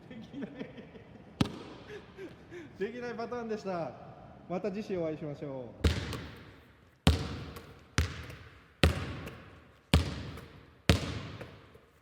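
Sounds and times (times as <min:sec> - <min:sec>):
basketball bouncing on hard floor: 0:05.8 - 0:11.8.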